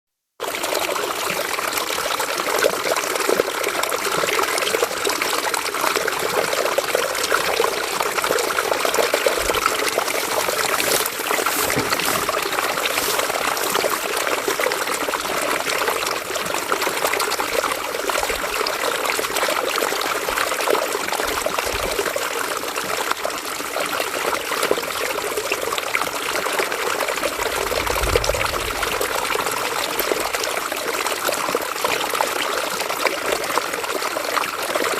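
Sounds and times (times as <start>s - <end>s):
river water flowing over rocks: 0.4s - 27.8s
faint low thuds: 10.0s - 14.0s.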